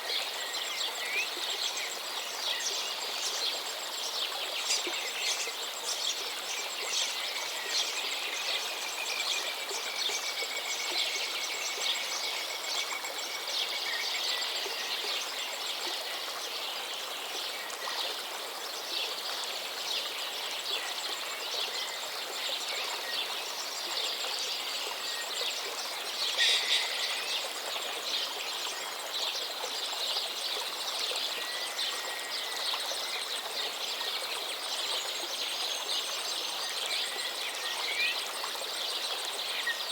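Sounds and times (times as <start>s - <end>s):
flowing river water: 0.0s - 39.9s
birds chirping: 26.3s - 27.5s.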